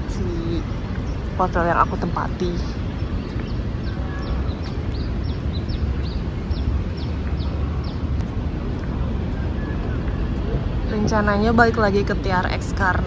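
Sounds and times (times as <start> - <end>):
low outdoor rumble: 0.0 - 13.0
small bird chirping rapidly: 0.5 - 8.1.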